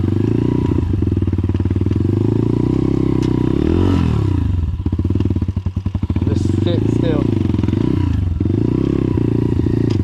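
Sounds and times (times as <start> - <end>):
dirt bike engine running: 0.0 - 10.0.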